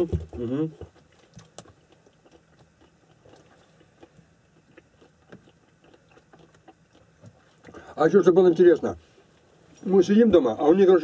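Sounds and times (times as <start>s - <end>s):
person chewing an apple: 0.8s - 9.9s.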